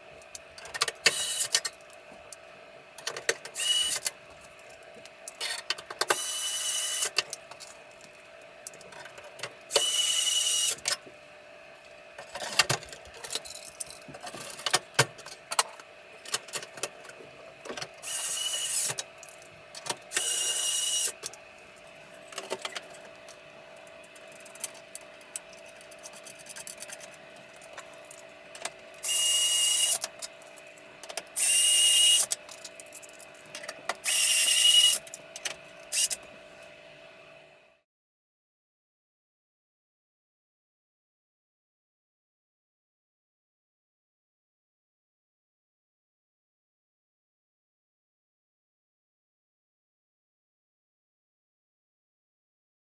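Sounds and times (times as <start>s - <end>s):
small electric motor whirring: 3.6s - 4.1s, 6.1s - 7.2s, 9.7s - 10.8s, 18.0s - 19.0s, 20.1s - 21.4s, 29.0s - 33.2s, 34.0s - 35.2s, 35.8s - 36.3s.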